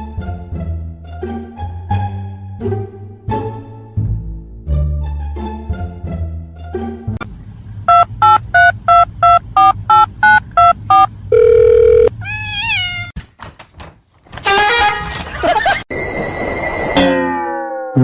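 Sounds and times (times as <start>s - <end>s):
held electronic tone: 7.2s - 12.1s
short electronic beeps: 7.2s - 12.1s
quick rising chirps: 7.3s - 11.1s.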